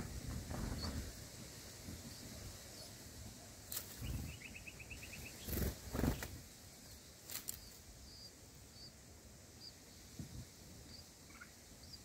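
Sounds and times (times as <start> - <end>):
small bird chirping: 3.7 - 9.0, 9.6 - 10.1, 10.8 - 12.0.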